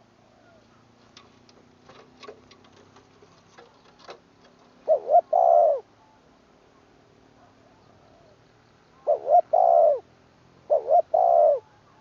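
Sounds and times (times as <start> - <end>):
dove cooing: 4.8 - 6.2, 9.0 - 12.0.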